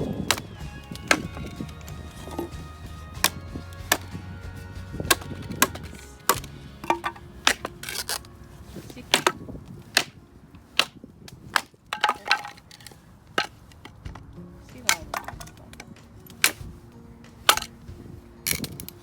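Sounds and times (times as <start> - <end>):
faint background music: 0.0 - 19.0
sharp wooden knocks: 0.1 - 7.8.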